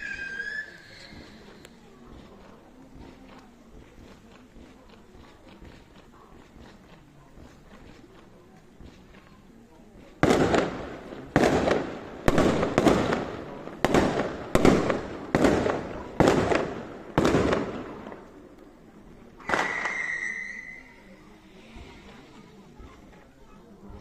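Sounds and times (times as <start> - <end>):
high-pitched whistle: 0.0 - 1.3, 19.4 - 21.1
fireworks bangs echoing: 10.0 - 20.8.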